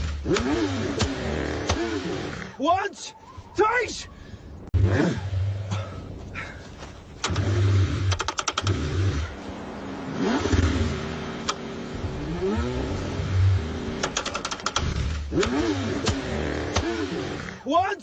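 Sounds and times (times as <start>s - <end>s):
car engine cranking and revving: 0.0s - 2.6s, 4.7s - 6.2s, 7.2s - 17.6s
rapid clicking: 8.1s - 8.8s, 14.0s - 16.9s.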